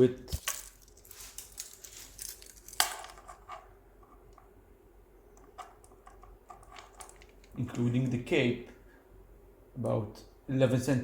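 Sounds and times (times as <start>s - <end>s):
rustling: 0.3s - 3.6s.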